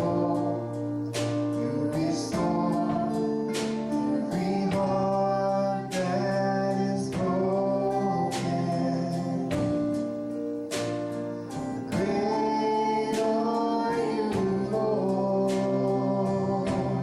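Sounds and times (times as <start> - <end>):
instrumental accompaniment: 0.0 - 17.0
voices singing: 0.0 - 17.0.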